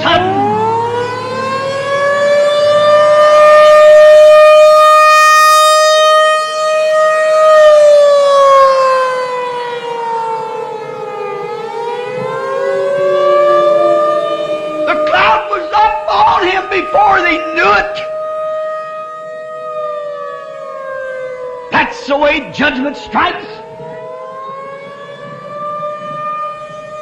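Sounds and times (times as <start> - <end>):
warning siren wailing: 0.0 - 27.0.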